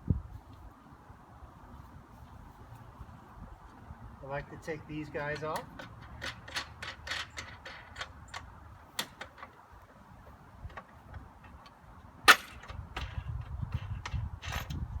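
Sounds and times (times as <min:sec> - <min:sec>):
light metallic clicks and taps: 0:05.3 - 0:09.6.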